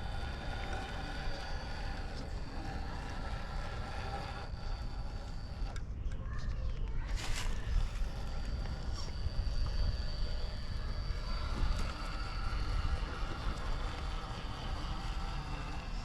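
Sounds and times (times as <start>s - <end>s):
electric motor whining: 0.0s - 5.9s, 7.1s - 16.0s
wind rumble on microphone: 7.1s - 16.0s.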